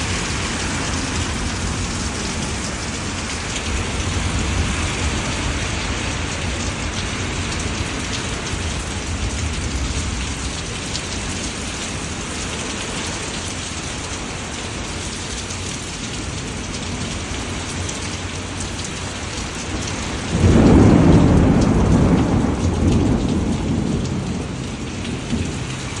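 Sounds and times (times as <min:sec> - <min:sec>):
thunder rumble: 0:00.0 - 0:13.0, 0:19.7 - 0:26.0
steady rain falling: 0:00.0 - 0:26.0.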